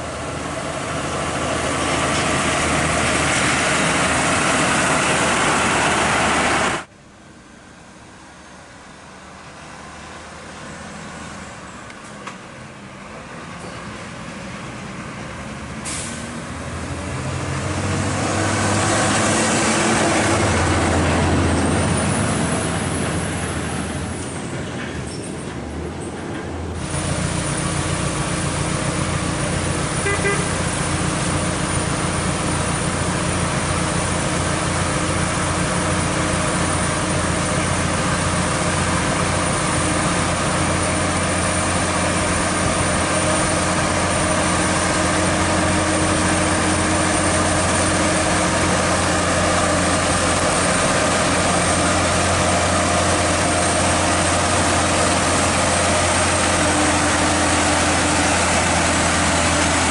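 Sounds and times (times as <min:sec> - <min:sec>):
truck diesel engine running: 0:00.0 - 0:11.7, 0:15.8 - 0:24.8, 0:26.7 - 0:59.9
brief high tone: 0:30.0 - 0:30.6.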